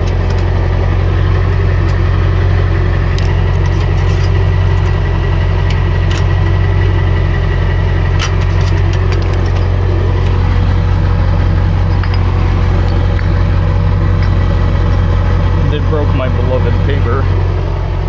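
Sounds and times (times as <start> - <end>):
truck engine and road noise: 0.0 - 18.0
light rattling clicks: 3.1 - 5.0.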